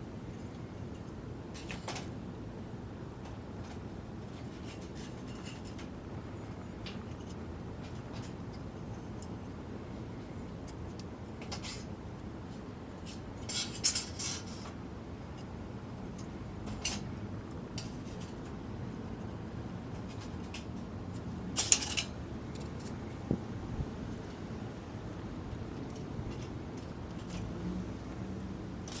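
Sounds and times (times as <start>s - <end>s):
steady low background noise: 0.0s - 29.0s
metal cookware clinking and scraping: 21.6s - 22.2s.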